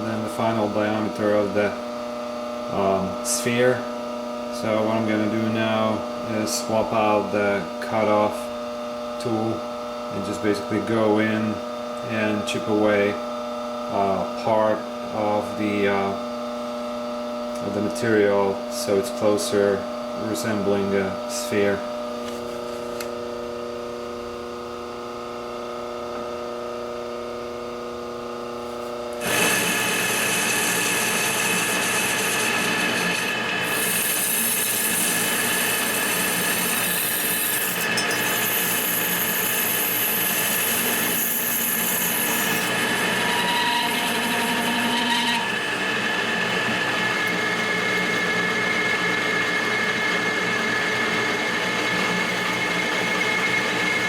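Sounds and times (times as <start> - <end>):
lathe motor whine: 0.0 - 54.0
lathe tool cutting metal hiss: 29.2 - 45.9.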